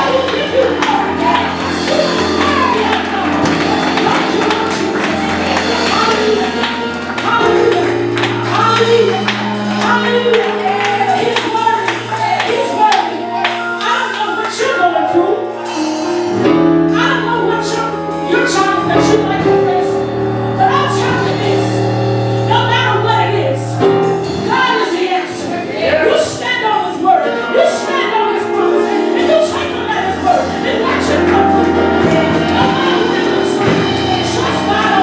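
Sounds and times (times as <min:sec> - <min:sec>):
gospel choir singing: 0:00.0 - 0:13.8, 0:24.4 - 0:35.0.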